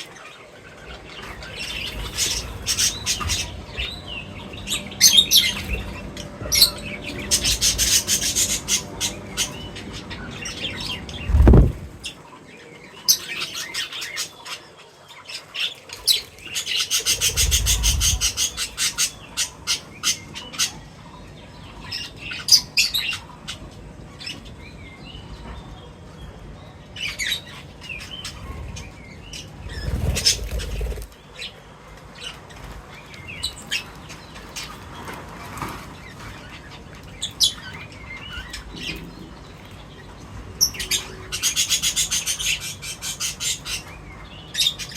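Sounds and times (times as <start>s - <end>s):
small birds chirping: 0.0s - 44.9s
wingbeats: 0.7s - 10.1s, 10.7s - 12.2s, 16.0s - 19.6s, 29.4s - 31.2s
low thumps: 11.2s - 12.0s.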